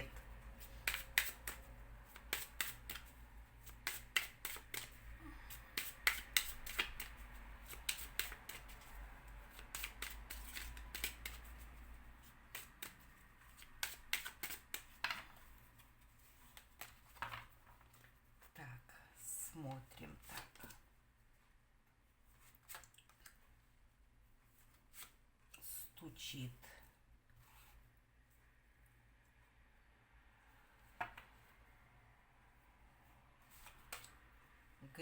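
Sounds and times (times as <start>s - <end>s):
cards being shuffled: 0.0s - 18.2s, 33.4s - 34.2s.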